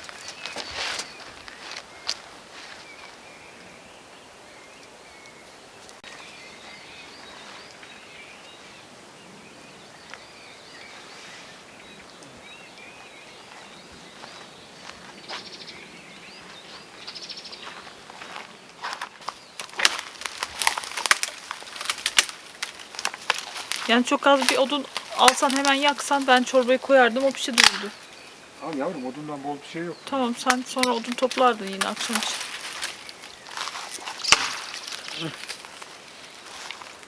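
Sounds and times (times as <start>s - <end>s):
songbirds warbling: 0.0s - 37.0s
sharp snaps and knocks: 19.0s - 26.5s, 27.2s - 28.3s, 30.4s - 36.0s.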